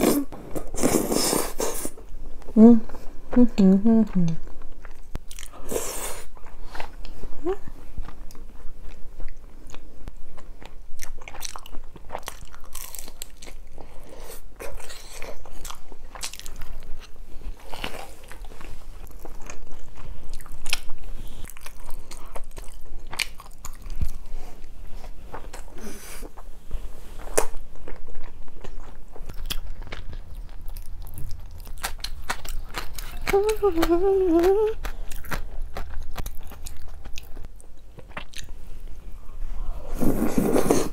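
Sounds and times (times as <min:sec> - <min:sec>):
crisp chewing crunches: 0:08.0 - 0:14.0, 0:27.2 - 0:38.6.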